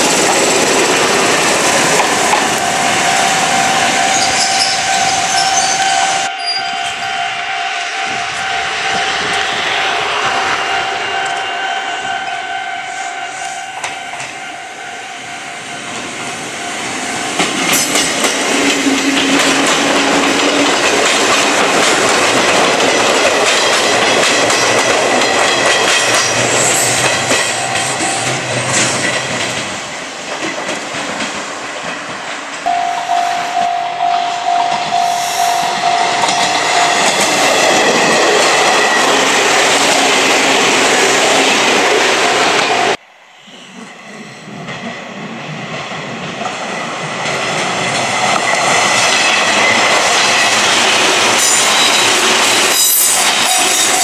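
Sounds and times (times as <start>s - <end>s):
electric train passing: 0.0s - 54.0s
wheels clacking over rail joints: 17.0s - 32.8s
steady tone: 32.7s - 45.5s.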